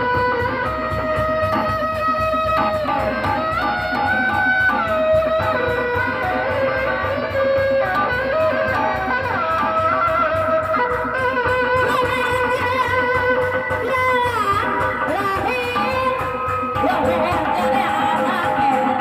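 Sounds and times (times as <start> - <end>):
steady drum beat: 0.0 - 19.0.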